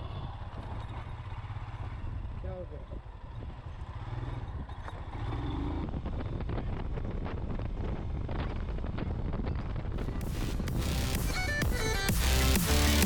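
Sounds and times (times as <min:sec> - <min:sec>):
motorcycle engine rumble: 0:00.0 - 0:13.0
wind and road noise: 0:00.0 - 0:13.0
background music: 0:10.0 - 0:13.0.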